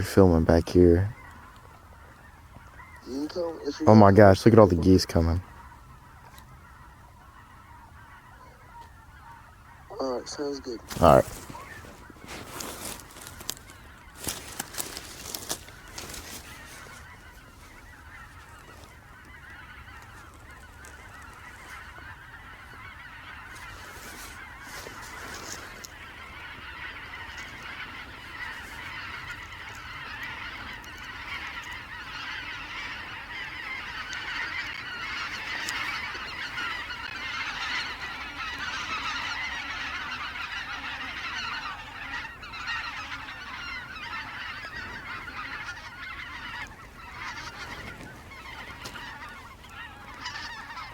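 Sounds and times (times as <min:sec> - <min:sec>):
flock of geese honking: 0:00.0 - 0:50.9.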